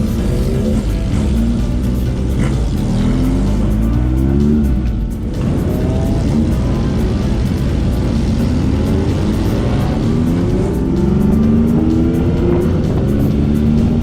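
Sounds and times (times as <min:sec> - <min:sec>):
motorcycle engine accelerating: 0:00.0 - 0:14.0
music playing: 0:00.0 - 0:14.0.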